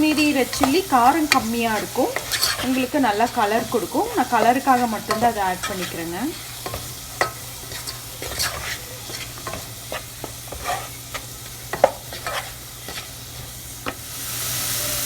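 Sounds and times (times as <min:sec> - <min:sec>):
spatula scraping a frying pan: 0:00.0 - 0:14.1
light sizzle: 0:00.0 - 0:15.0.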